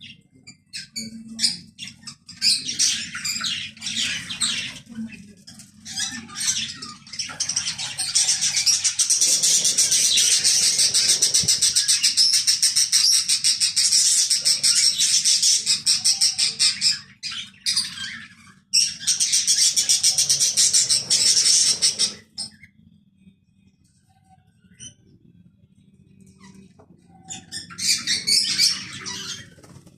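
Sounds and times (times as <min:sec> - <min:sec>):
small birds chirping: 0:00.0 - 0:29.9.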